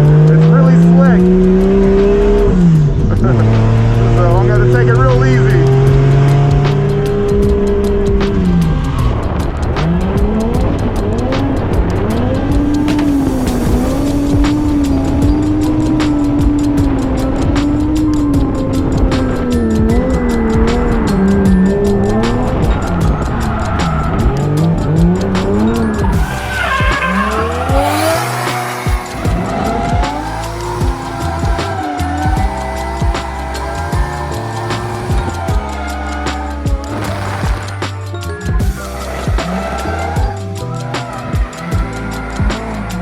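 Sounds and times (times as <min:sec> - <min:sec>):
car engine revving: 0:00.0 - 0:43.0
sharp exhaust cracks: 0:00.0 - 0:43.0
tyre squeal: 0:20.4 - 0:43.0.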